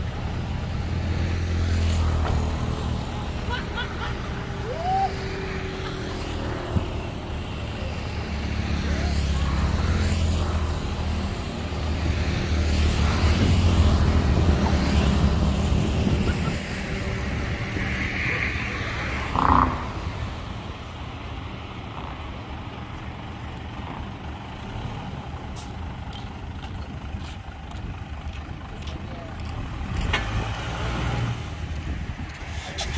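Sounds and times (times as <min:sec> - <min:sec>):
dump truck diesel engine: 0:00.0 - 0:32.9.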